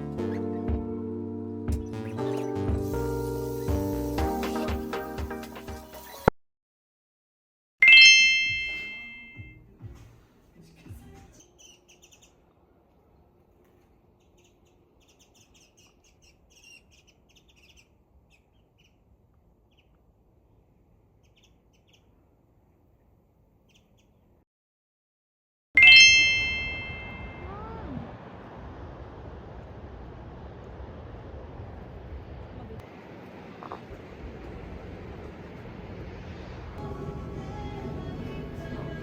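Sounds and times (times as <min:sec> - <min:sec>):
bright chime ding: 0:07.8 - 0:09.6, 0:25.8 - 0:27.6
faint bird chirps: 0:11.3 - 0:12.5, 0:14.2 - 0:19.0, 0:21.2 - 0:22.2, 0:23.6 - 0:24.2.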